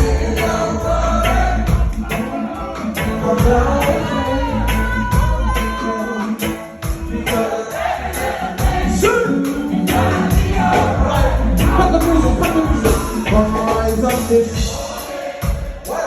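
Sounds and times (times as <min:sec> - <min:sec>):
person singing: 0:00.0 - 0:16.0
reggae band playing: 0:00.0 - 0:16.0.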